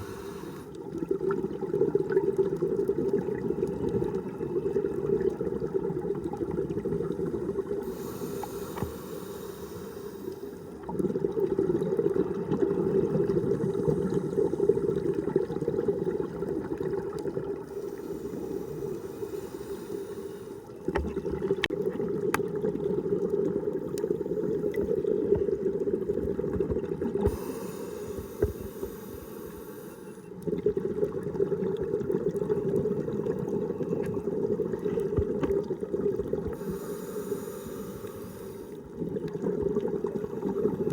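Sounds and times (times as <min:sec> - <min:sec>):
diver hissing inhale: 0:00.0 - 0:00.8, 0:07.8 - 0:10.8, 0:17.7 - 0:20.7, 0:27.3 - 0:30.4, 0:36.6 - 0:38.9
bubbling exhale underwater: 0:00.0 - 0:40.9.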